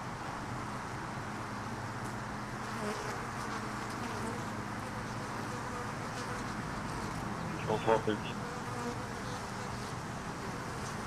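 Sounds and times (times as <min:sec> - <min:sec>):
bees buzzing: 0:02.6 - 0:11.0.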